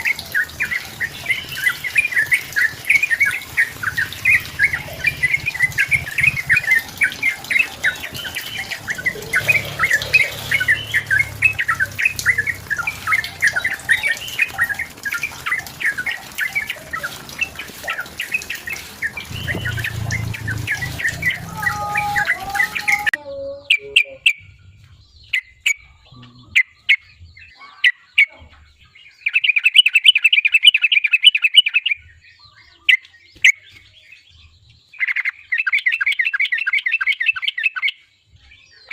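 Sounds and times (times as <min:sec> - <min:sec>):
bird rapid trill: 0:00.0 - 0:23.1
background noise: 0:00.0 - 0:38.9
bird chattering song: 0:00.0 - 0:38.9.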